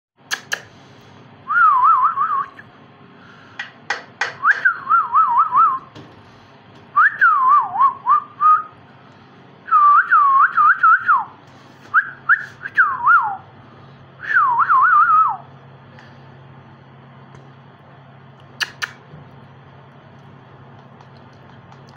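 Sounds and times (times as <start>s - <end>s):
sharp clicks: 0.3s - 0.7s, 18.4s - 19.0s.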